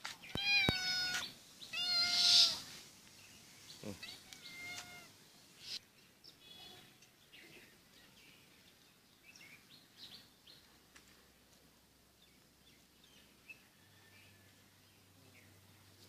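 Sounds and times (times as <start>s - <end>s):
faint bird chirps: 0.2s - 10.7s.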